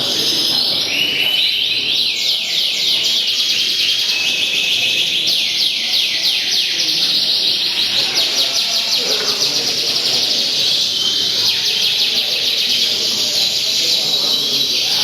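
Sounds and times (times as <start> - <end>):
songbirds singing: 0.0 - 15.0.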